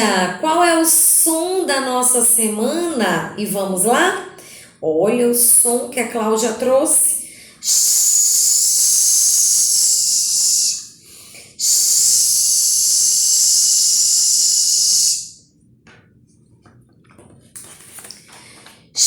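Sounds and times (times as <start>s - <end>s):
woman making sh sound: 11.6s - 15.2s.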